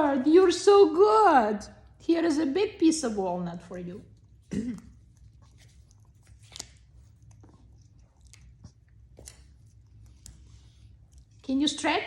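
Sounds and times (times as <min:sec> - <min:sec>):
parrot crunching walnut: 0:04.0 - 0:11.5.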